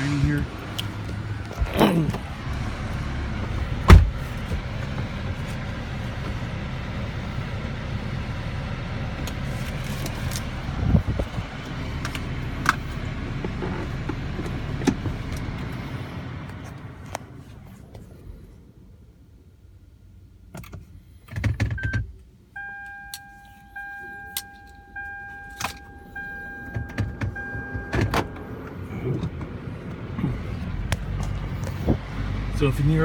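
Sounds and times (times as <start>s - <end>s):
car cabin running noise: 0.0s - 18.2s, 20.5s - 33.0s
loud thump: 3.8s - 4.2s.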